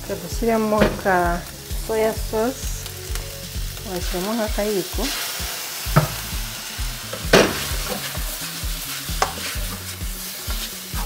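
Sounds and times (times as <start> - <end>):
meat sizzling in a frying pan: 0.0 - 11.0
spatula knocking against pan: 5.9 - 6.2, 9.2 - 9.5
spatula stirring and scraping: 7.0 - 11.0.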